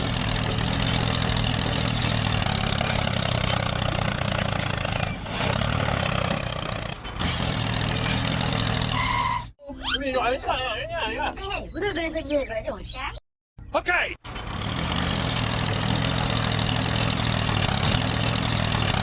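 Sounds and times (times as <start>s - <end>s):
small tractor motor running: 0.0s - 9.2s, 14.3s - 19.0s.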